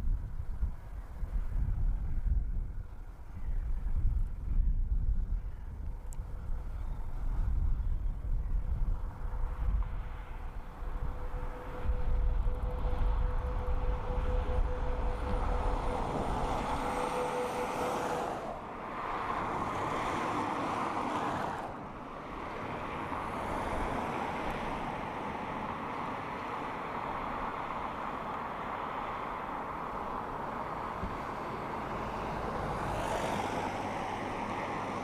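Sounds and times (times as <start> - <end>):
steady whine: 7.6 - 32.7.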